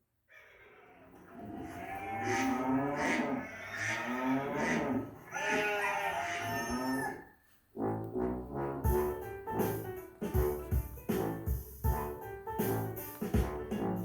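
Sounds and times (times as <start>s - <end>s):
cow mooing: 1.1s - 7.3s.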